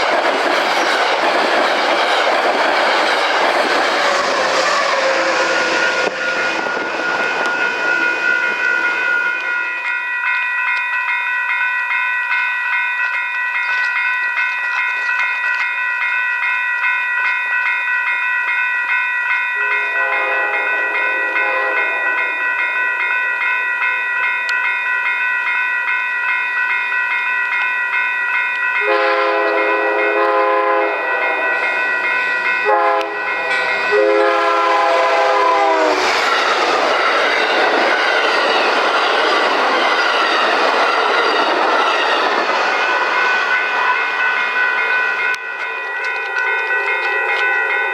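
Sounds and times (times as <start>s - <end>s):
train wheels clattering on rails: 0.0s - 10.0s, 28.5s - 47.9s
crossing signal bells ringing: 3.2s - 47.9s
train horn blasts: 4.6s - 6.8s, 19.6s - 22.2s, 28.8s - 31.6s, 32.6s - 36.0s.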